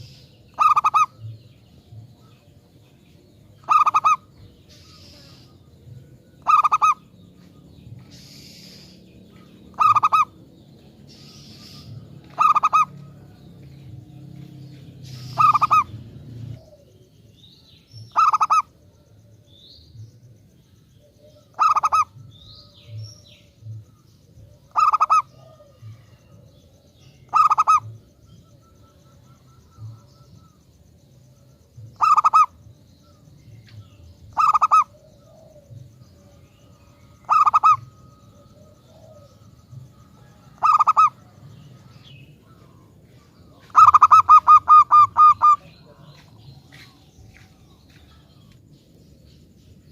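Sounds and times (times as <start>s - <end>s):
dove cooing: 0.0s - 1.4s, 3.6s - 5.6s, 6.4s - 8.9s, 9.6s - 10.4s, 11.1s - 13.4s, 15.0s - 17.1s, 18.1s - 18.8s, 21.0s - 23.0s, 24.5s - 26.4s, 27.1s - 30.5s, 31.9s - 32.6s, 34.2s - 46.4s.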